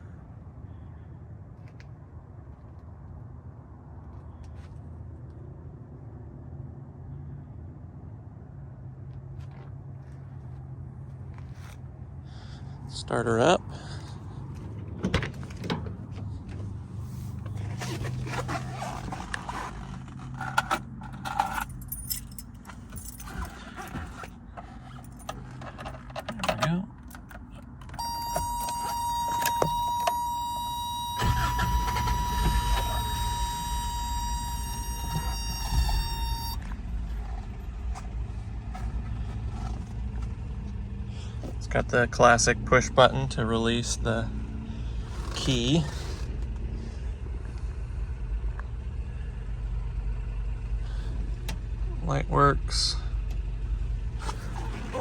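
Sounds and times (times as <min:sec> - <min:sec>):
keys jingling: 0:21.0 - 0:36.7
engine idling: 0:27.0 - 0:55.0
high-pitched warning buzzer: 0:27.9 - 0:36.6.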